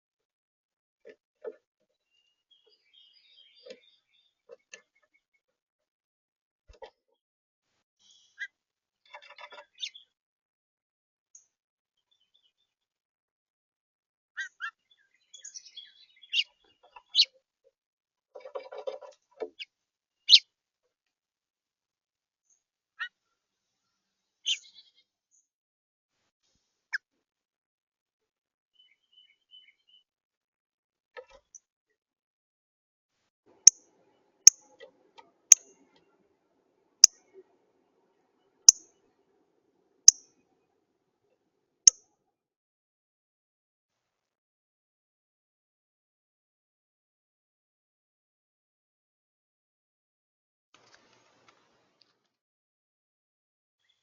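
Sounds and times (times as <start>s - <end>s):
small birds chirping: 1.0s - 5.5s, 8.0s - 10.2s, 14.4s - 17.4s, 18.4s - 20.5s, 22.4s - 25.5s, 28.7s - 30.1s, 33.6s - 36.3s, 37.0s - 39.4s, 40.0s - 40.8s
bird high-pitched clicks: 34.5s - 34.9s, 35.5s - 36.0s, 40.1s - 40.3s.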